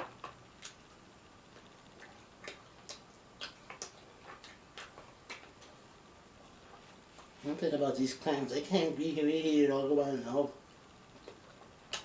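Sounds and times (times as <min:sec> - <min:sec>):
person chewing crunchy food: 0:01.6 - 0:07.4.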